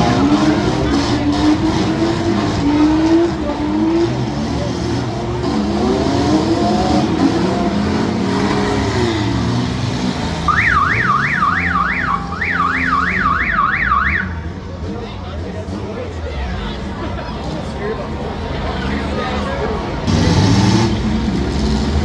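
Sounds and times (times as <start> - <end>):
car engines revving: 0.0 - 22.0
electronic warbling alarm: 10.5 - 14.2.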